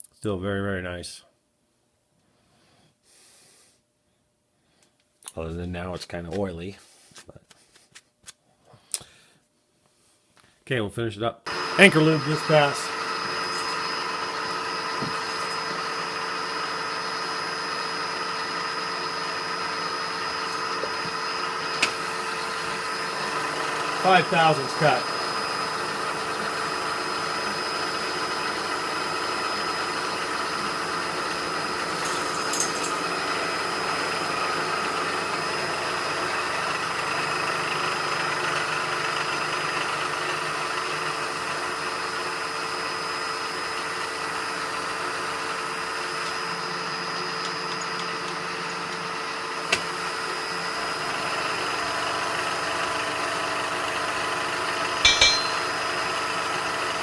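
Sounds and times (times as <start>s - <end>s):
machine tool humming and whining: 11.5s - 33.7s.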